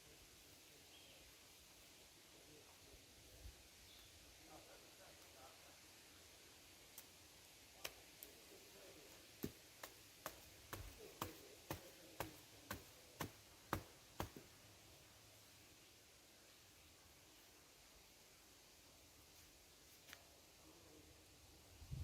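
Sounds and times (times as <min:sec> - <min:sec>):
peg hammered into ground: 0:09.3 - 0:14.5.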